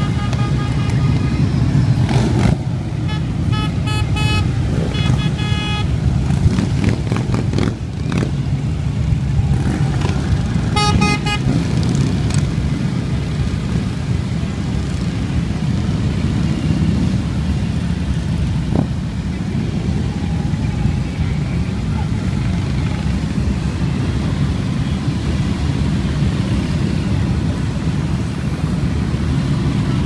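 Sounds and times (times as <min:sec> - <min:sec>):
motorcycle engines rumbling: 0:00.0 - 0:30.0
short horn beeps: 0:03.0 - 0:05.9.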